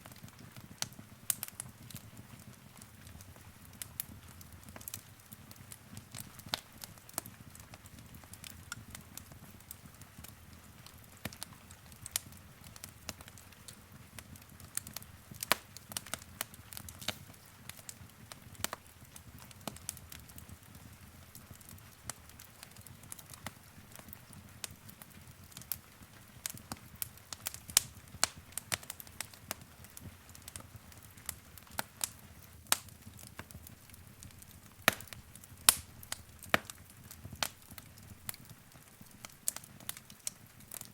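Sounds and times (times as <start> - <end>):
low rumble of burning: 0.0 - 40.9
wood fire crackling and popping: 0.0 - 40.9.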